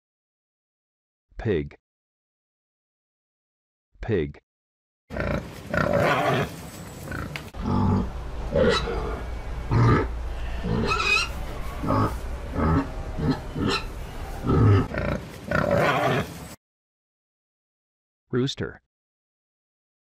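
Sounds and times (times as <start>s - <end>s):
pig grunting: 5.1s - 16.5s
low background rumble: 7.4s - 14.9s.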